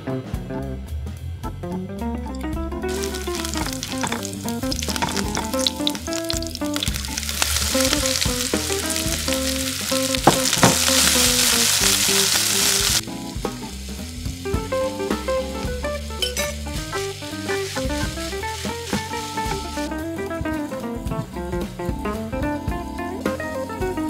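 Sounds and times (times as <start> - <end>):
soft background music: 1.6 - 24.0
oil sizzling in a wok: 2.9 - 20.8.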